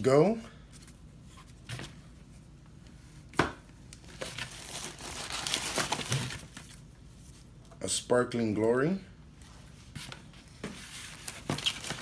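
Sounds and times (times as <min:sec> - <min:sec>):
plastic and paper crinkling: 0:04.0 - 0:06.8, 0:10.7 - 0:12.0.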